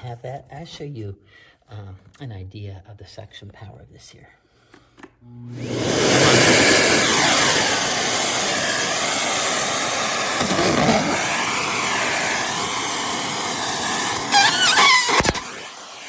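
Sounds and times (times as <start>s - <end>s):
vacuum cleaner running: 5.3s - 16.0s.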